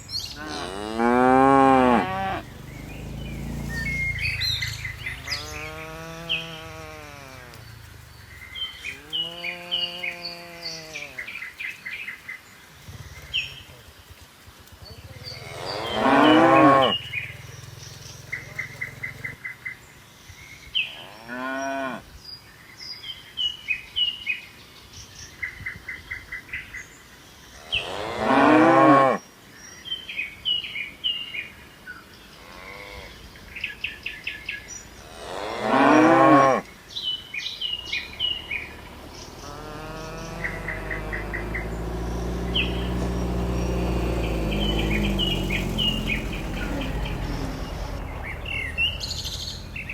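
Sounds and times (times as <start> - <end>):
birds chirping: 0.0 - 22.0, 32.0 - 49.9
cattle mooing: 0.3 - 7.8, 8.8 - 11.3, 15.3 - 17.1, 35.1 - 36.6, 38.0 - 49.9.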